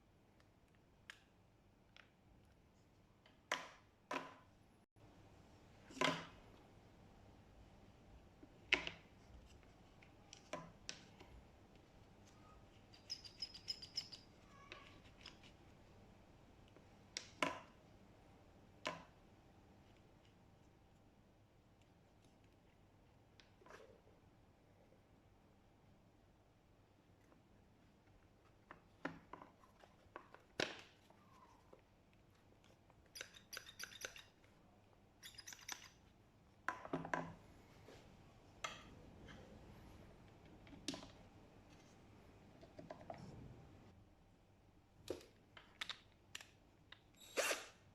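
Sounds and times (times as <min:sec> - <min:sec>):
small hard parts clicking: 0:12.8 - 0:15.5, 0:33.1 - 0:34.4.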